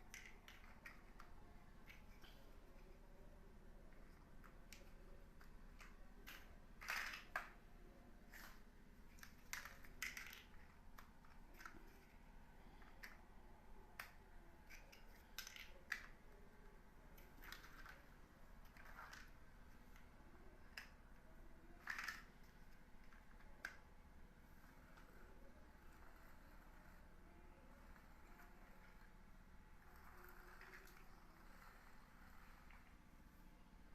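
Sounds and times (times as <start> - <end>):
plastic building blocks clicking: 0.0 - 2.9, 3.9 - 7.6, 8.3 - 13.2, 14.0 - 16.4, 17.1 - 21.0, 21.7 - 23.9, 29.8 - 33.0.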